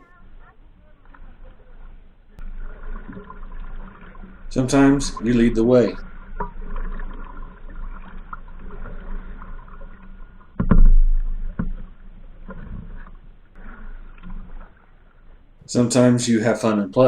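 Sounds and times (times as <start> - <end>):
paddle strokes: 0.0 - 16.2
water splashing against boat: 0.0 - 17.0
knock on kayak: 10.6 - 11.8.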